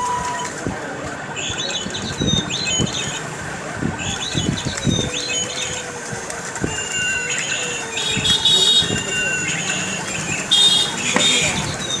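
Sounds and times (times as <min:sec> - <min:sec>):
recorded birdsong from small speaker: 0:01.4 - 0:03.3, 0:04.0 - 0:06.0, 0:06.7 - 0:12.0.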